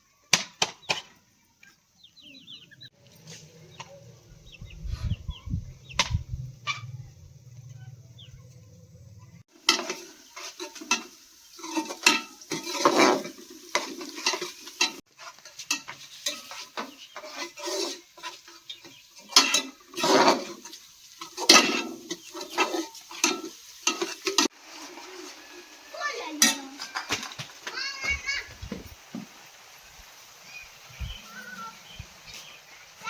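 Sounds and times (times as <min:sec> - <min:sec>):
metal spoon scraping a pot: 0:09.6 - 0:25.3.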